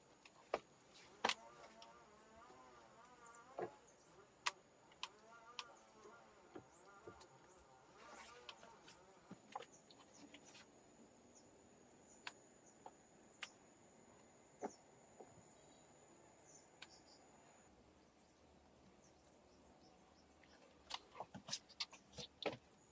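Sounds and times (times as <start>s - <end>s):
faint bird chirps: 6.7s - 22.9s.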